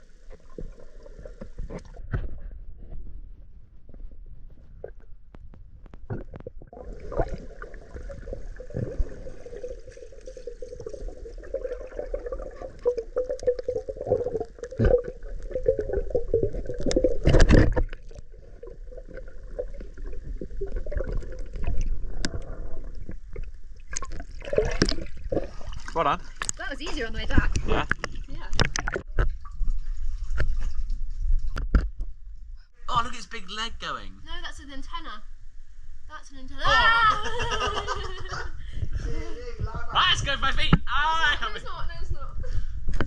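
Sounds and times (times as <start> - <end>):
water sloshing and gurgling: 0.0 - 32.7.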